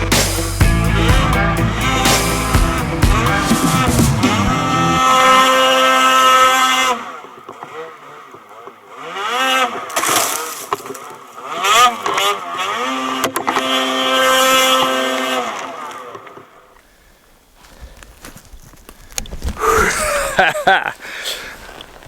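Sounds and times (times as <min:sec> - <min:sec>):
snowmobile engine revving: 0:00.0 - 0:15.9.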